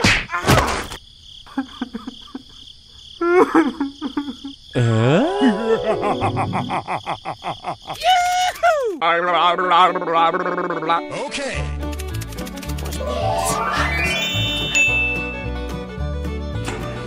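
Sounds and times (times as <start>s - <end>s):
squeaky gibberish character voices: 7.9s - 11.7s
fast run of clicks: 11.8s - 13.0s
chirps sliding in pitch: 13.0s - 15.5s.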